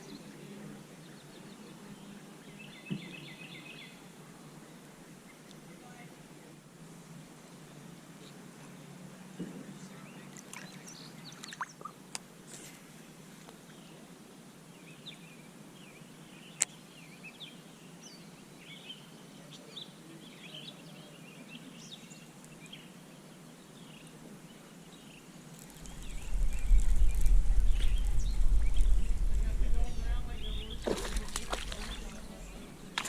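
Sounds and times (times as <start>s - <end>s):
small birds chirping: 9.6s - 33.0s.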